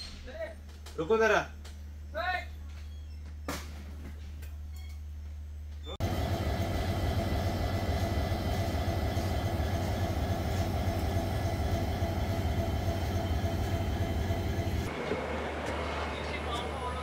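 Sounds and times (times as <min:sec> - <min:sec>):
constant hum: 0:00.0 - 0:17.0
train rumble: 0:06.0 - 0:17.0.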